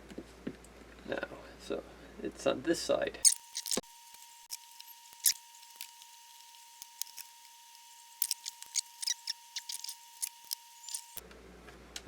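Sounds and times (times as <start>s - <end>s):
small clicks of tools and parts: 8.2s - 11.1s.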